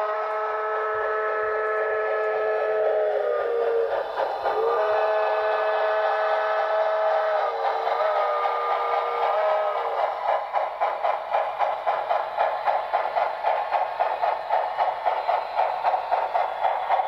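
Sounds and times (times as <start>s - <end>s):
model steam whistle blasts: 0.0s - 10.2s
model train running noise: 0.0s - 17.0s.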